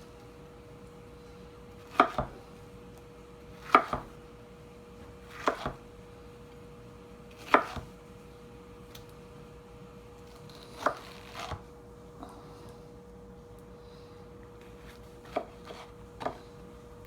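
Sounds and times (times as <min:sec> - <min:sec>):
faint steady hum: 0:00.0 - 0:17.0
knife chopping pineapple: 0:01.8 - 0:02.5, 0:03.6 - 0:04.2, 0:05.0 - 0:05.9, 0:07.3 - 0:08.0, 0:10.6 - 0:11.6, 0:14.8 - 0:16.5.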